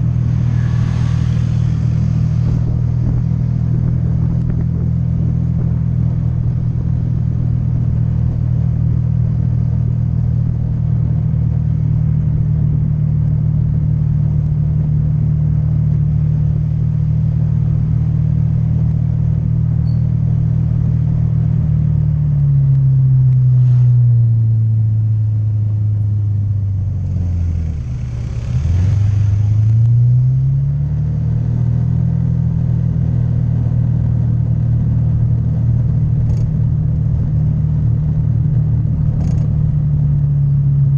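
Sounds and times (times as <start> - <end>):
rushing noise: 0.0 - 5.1, 26.9 - 30.2.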